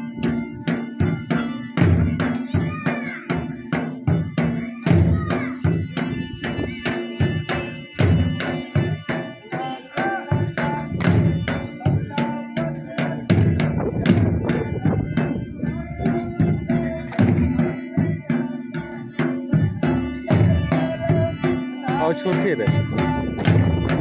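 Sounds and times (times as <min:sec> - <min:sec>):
drums beaten in fast rhythm: 0:00.0 - 0:24.0
reed pipe playing wavering notes: 0:05.8 - 0:24.0.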